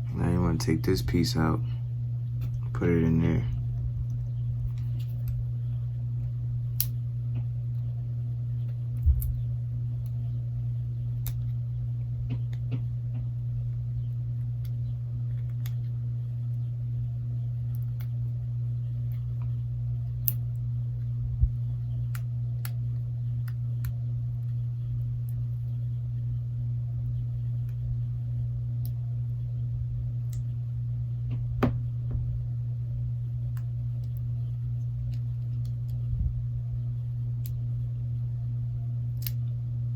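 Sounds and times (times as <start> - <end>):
low hum: 0.0 - 39.9
sharp knocks: 31.6 - 32.2.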